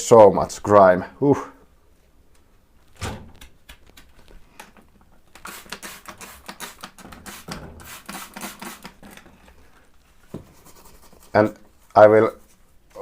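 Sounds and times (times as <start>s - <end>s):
brush scrubbing metal: 5.4s - 9.0s.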